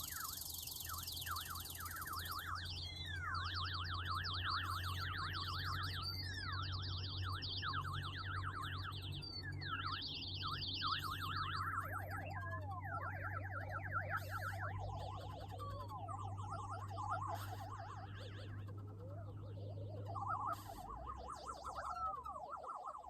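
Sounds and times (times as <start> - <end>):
synthesizer warbling tone: 10.8 - 23.0.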